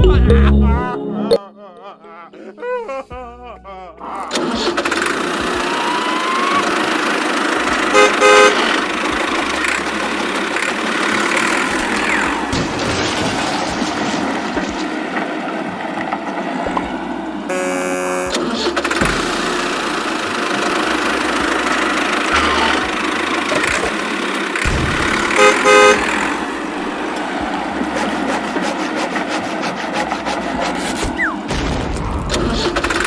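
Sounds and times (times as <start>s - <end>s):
cartoon engine running: 4.0s - 12.6s, 17.5s - 31.5s
cartoon horn honking: 7.6s - 9.9s, 17.5s - 18.6s, 22.3s - 23.8s, 25.1s - 26.4s.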